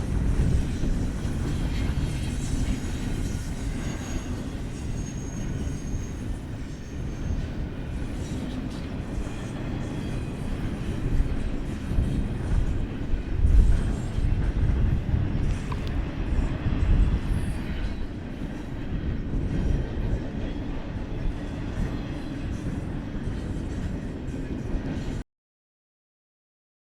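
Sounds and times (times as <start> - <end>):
thin wheel squeal: 3.7 - 7.4.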